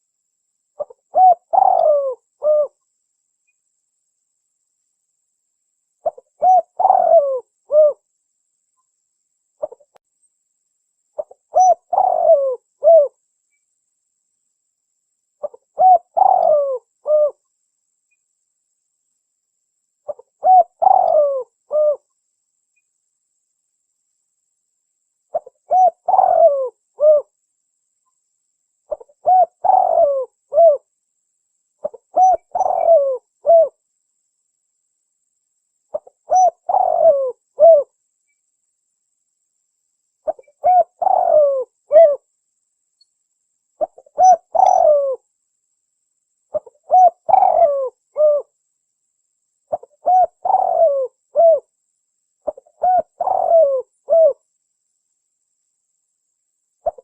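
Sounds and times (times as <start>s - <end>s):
dove cooing: 0.8s - 2.8s, 6.0s - 8.0s, 9.6s - 9.9s, 11.2s - 13.2s, 15.4s - 17.4s, 20.1s - 22.1s, 25.3s - 27.3s, 28.9s - 30.9s, 31.8s - 33.8s, 35.9s - 37.9s, 40.2s - 42.2s, 43.8s - 45.2s, 46.5s - 48.5s, 49.7s - 51.7s, 52.4s - 54.4s.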